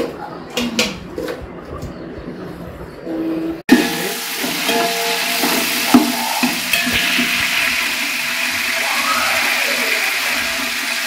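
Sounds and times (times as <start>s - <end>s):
spices sizzling in hot oil: 3.7s - 11.0s.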